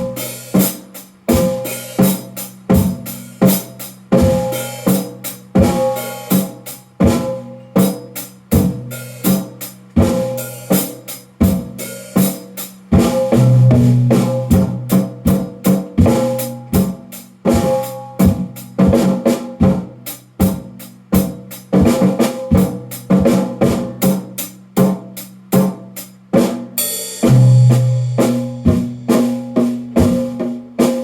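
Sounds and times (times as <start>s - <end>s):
drum kit steady beat: 0.0s - 31.0s
low drum tones ringing: 13.0s - 20.0s.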